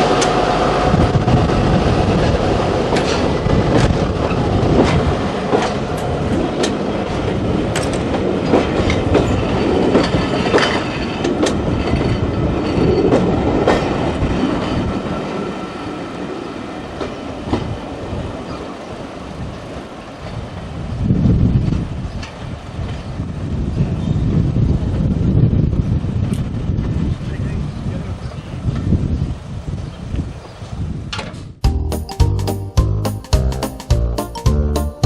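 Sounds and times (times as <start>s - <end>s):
train wheels clicking over rail joints: 0.0s - 20.7s.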